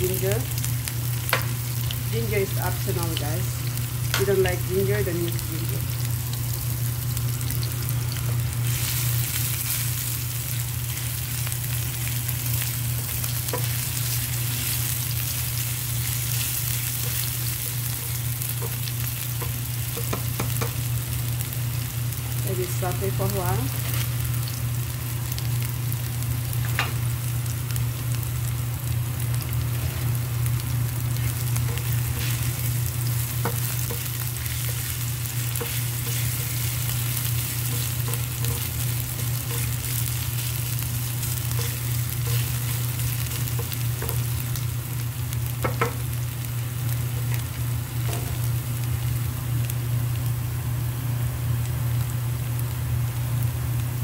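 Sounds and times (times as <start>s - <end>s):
ginger sizzling in oil: 0.0s - 54.0s
steady low hum: 0.0s - 54.0s
spatula stirring in pan: 31.2s - 44.4s.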